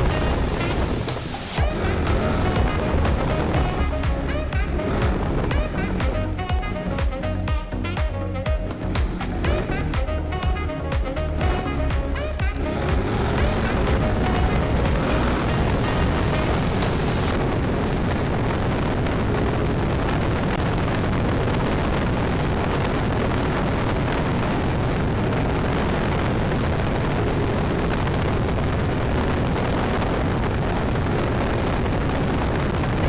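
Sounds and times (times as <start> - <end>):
road noise: 0.0 - 33.0
wind rushing: 0.0 - 33.0
scooter engine: 1.5 - 7.7, 8.3 - 17.4.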